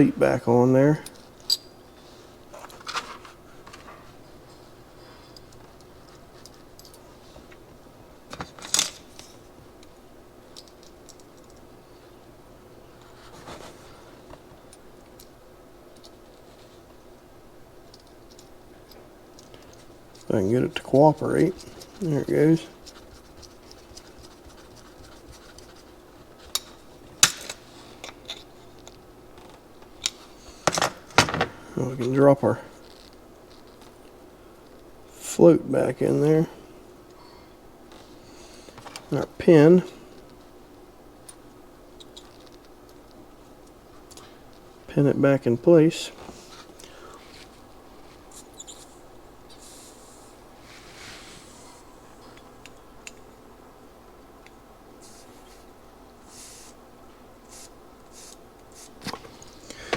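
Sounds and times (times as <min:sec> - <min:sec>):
faint steady hum: 0:00.0 - 0:59.9
small metallic clicks and clinks: 0:01.0 - 0:01.8.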